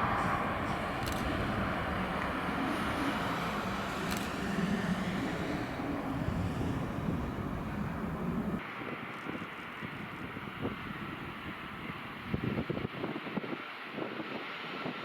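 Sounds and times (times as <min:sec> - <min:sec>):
aircraft engines humming: 0:00.0 - 0:12.8
wind on microphone: 0:00.0 - 0:15.0.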